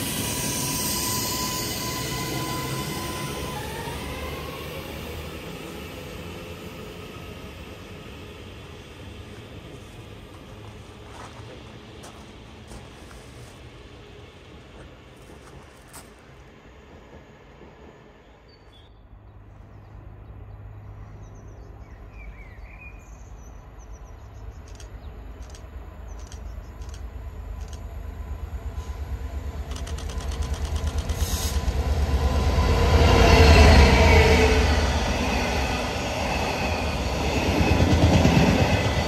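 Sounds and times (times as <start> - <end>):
train approaching: 0.0 - 39.0
train wheels clattering: 29.6 - 32.0.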